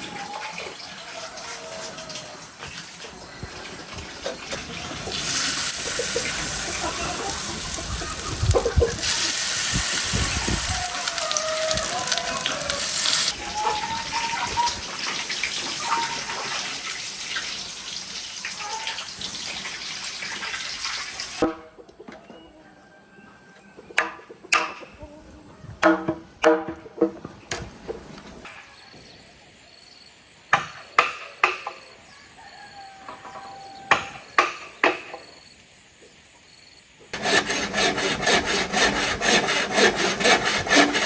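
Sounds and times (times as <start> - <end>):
water falling and splashing: 0.0 - 21.4.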